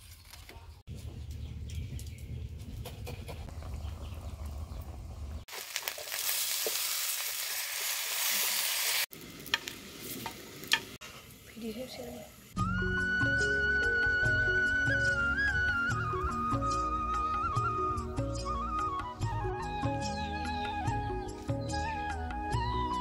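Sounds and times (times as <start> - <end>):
food sizzling in hot oil: 5.5 - 12.6.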